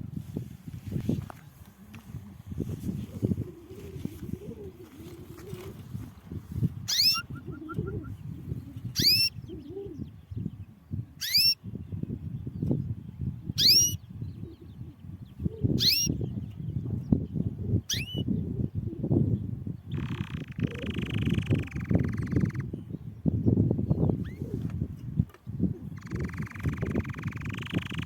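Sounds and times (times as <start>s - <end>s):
canary rising call: 6.9s - 8.0s, 9.0s - 9.3s.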